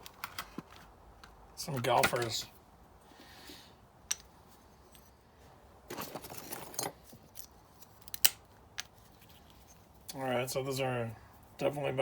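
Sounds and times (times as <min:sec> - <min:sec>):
scraping rattle of metal parts: 0:05.9 - 0:07.5.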